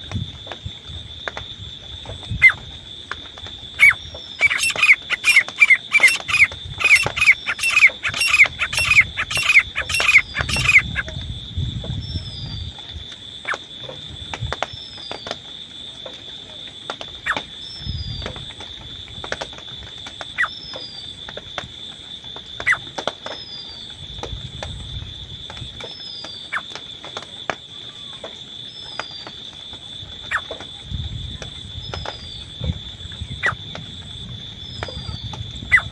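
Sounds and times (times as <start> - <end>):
partridge calling: 3.8 - 11.1.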